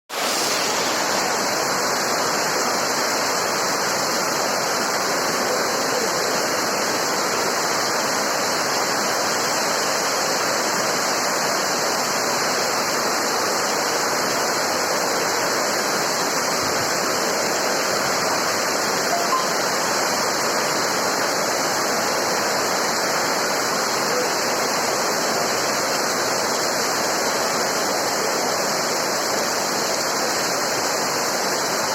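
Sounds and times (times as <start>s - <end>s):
heavy rain pouring: 0.1s - 31.9s.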